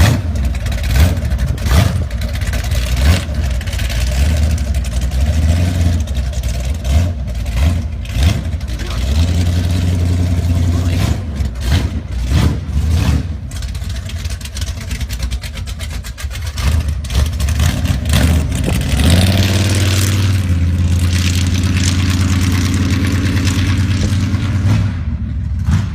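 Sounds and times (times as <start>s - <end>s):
truck engine running choppy: 0.0s - 25.9s.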